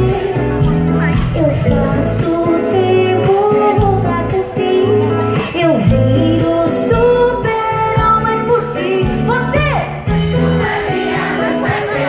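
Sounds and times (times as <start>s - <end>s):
bass notes: 0.0s - 4.4s
instrumental accompaniment: 0.0s - 12.0s
woman singing pop song: 0.0s - 12.0s.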